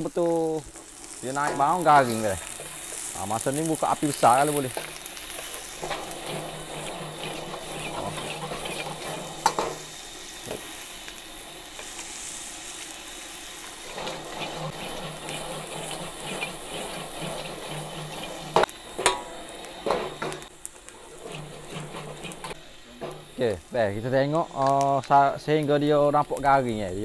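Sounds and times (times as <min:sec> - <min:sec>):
vegetables sizzling in hot oil: 0:00.0 - 0:27.0
spatula scraping and stirring: 0:01.4 - 0:10.7, 0:13.8 - 0:23.4.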